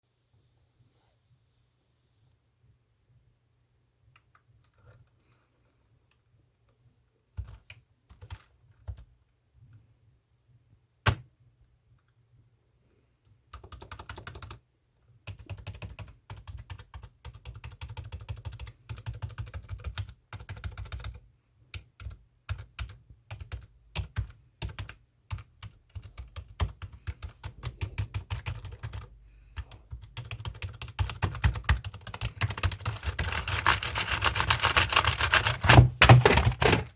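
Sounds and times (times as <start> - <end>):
typing on computer keyboard: 7.4 - 9.1, 13.5 - 14.6, 15.2 - 36.9.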